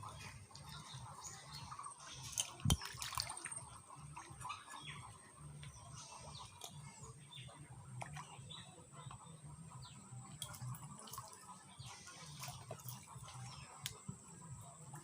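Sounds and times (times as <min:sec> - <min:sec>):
water dripping and trickling: 0:00.0 - 0:07.2, 0:10.2 - 0:15.0.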